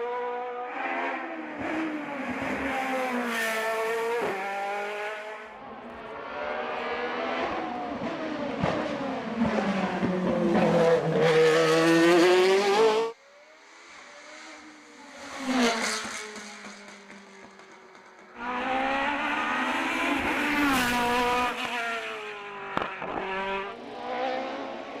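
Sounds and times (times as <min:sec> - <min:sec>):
racing car engine revving: 0:00.7 - 0:13.2, 0:18.4 - 0:25.0.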